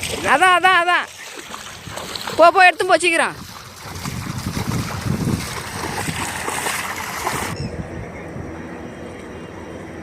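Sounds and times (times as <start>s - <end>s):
water sloshing: 0.0s - 7.6s
wind rushing over microphone: 3.2s - 8.8s.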